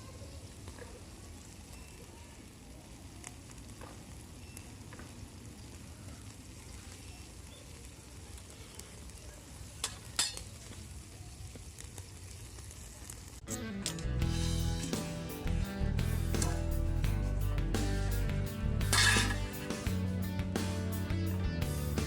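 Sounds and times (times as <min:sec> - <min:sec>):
small crackles: 0:00.0 - 0:14.2
food sizzling on hot metal: 0:00.0 - 0:22.0.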